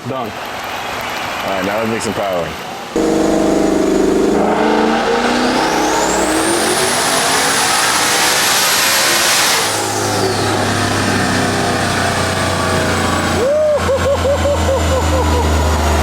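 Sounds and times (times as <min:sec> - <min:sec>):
high turbo whine: 0:02.9 - 0:16.0
car engine full-throttle pull: 0:03.0 - 0:13.6.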